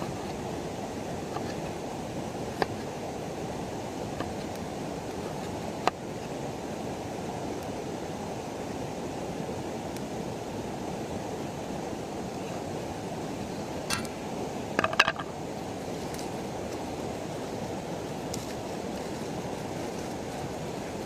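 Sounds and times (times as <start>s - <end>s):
river water running: 0.0s - 21.0s.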